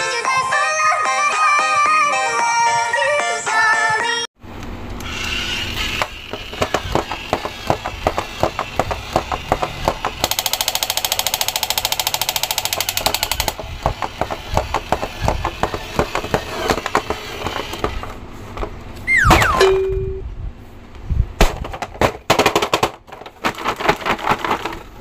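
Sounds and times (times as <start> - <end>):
toy machine-gun rattle: 10.2 - 17.9
toys clattering on wooden table: 21.6 - 24.9.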